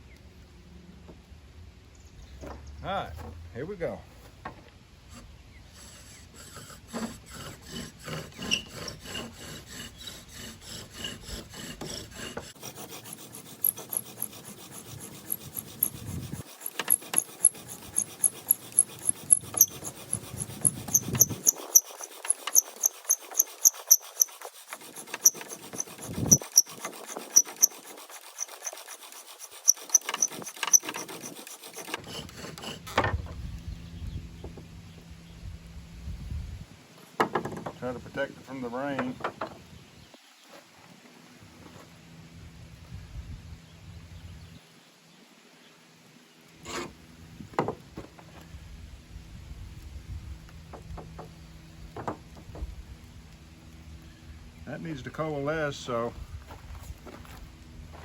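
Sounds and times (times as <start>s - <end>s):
bow drill rubbing and squeaking: 5.1s - 33.0s.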